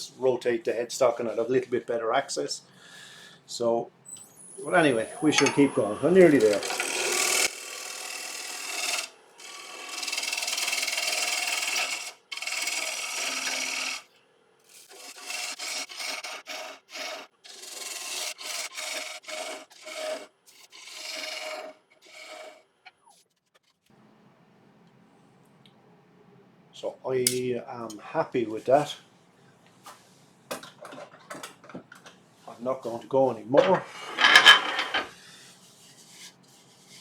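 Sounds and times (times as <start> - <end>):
gouge cutting wood on a lathe: 4.9 - 14.1, 14.7 - 22.6.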